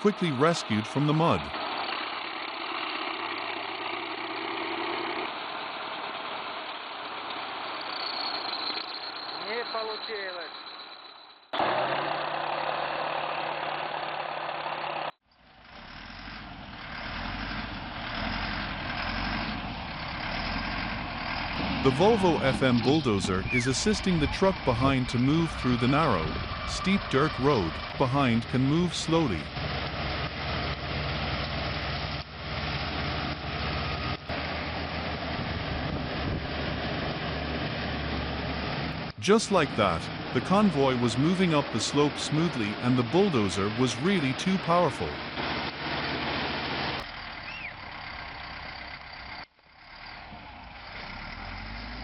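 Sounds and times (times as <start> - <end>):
heavy diesel engines running: 0.0 - 11.0, 11.6 - 52.0
low engine rumble: 11.6 - 52.0.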